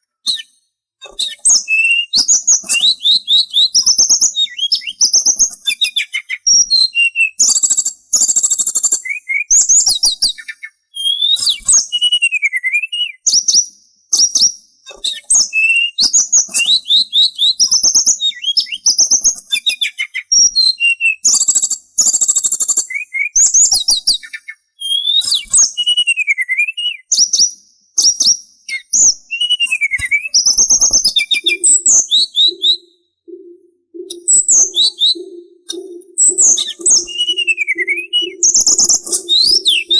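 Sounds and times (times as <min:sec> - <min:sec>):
songbird singing trills and whistles: 0:00.2 - 0:39.9
low pulsed hooting: 0:33.3 - 0:39.9.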